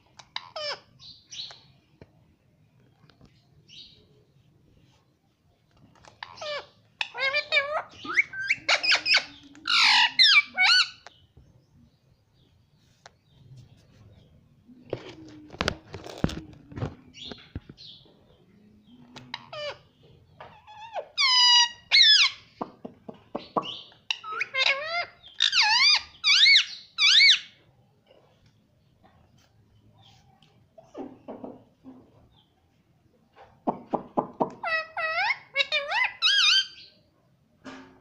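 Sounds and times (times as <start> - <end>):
parrot squawking: 6.2 - 11.1, 20.6 - 22.5, 24.1 - 27.6, 34.6 - 36.9.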